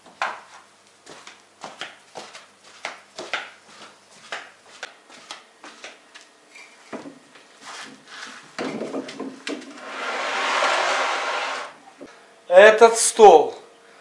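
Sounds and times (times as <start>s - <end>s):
rush of noise: 9.8s - 11.8s.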